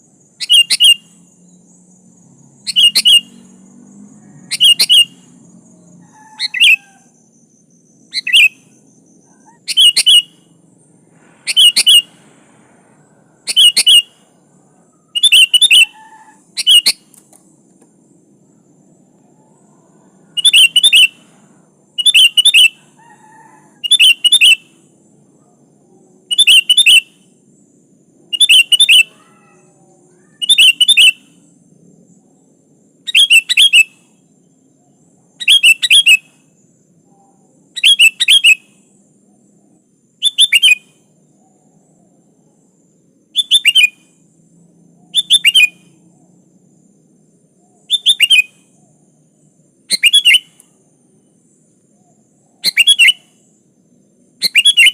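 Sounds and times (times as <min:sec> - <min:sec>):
bulbul calling: 0:00.2 - 0:01.6, 0:02.6 - 0:03.6, 0:04.4 - 0:10.6, 0:11.4 - 0:12.3, 0:13.4 - 0:14.4, 0:15.0 - 0:17.9, 0:19.3 - 0:21.3, 0:22.0 - 0:24.9, 0:26.2 - 0:27.3, 0:28.3 - 0:31.4, 0:33.1 - 0:34.3, 0:35.4 - 0:36.4, 0:37.1 - 0:38.8, 0:40.2 - 0:42.1, 0:43.3 - 0:44.1, 0:45.0 - 0:46.0, 0:47.6 - 0:49.0, 0:49.9 - 0:50.7, 0:52.0 - 0:53.6, 0:54.4 - 0:54.9.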